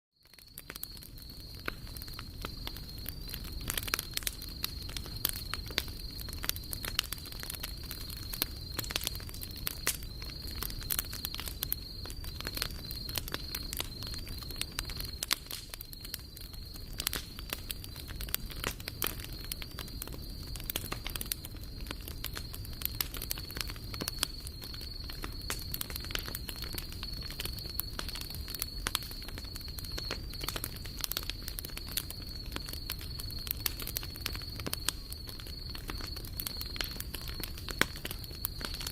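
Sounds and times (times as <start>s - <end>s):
campfire crackling and popping: 0.2s - 38.9s.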